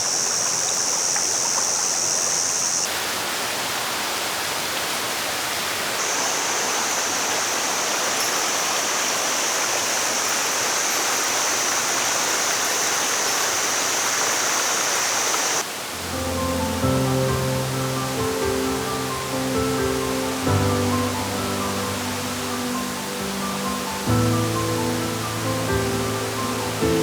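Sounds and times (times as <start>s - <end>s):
waterfall and stream rushing: 0.0s - 27.0s
music: 15.9s - 27.0s.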